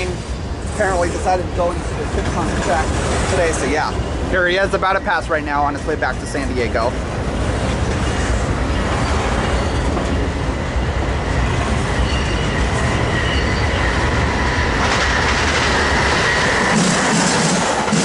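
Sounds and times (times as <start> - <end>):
train wheels rumbling on rail: 0.0 - 18.0
high wheel squeal: 8.0 - 11.0, 11.8 - 14.8.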